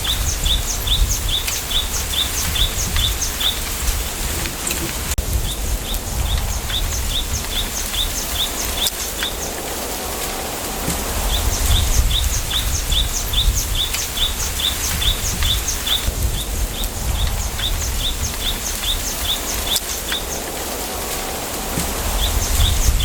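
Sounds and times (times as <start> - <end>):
small bird chirping: 0.0 - 3.8, 11.2 - 20.5
wind in bamboo: 0.0 - 23.0.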